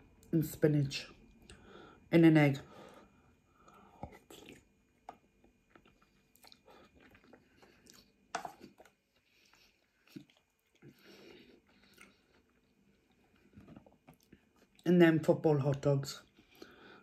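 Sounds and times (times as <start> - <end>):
person chewing noodles: 3.6 - 14.8.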